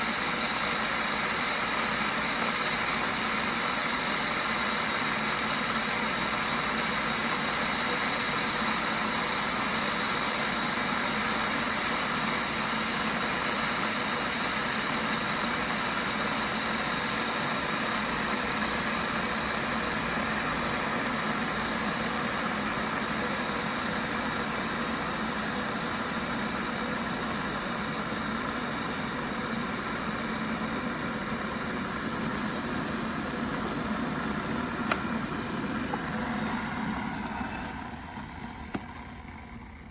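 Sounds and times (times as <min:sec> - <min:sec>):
electric kettle boiling water: 0:00.0 - 0:39.9
kettle switch click: 0:34.9 - 0:35.1.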